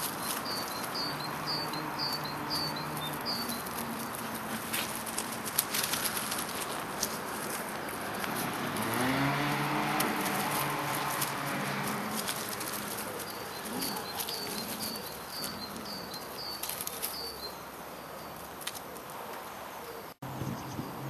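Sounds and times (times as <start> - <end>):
steady rustling hiss: 0.0 - 8.8.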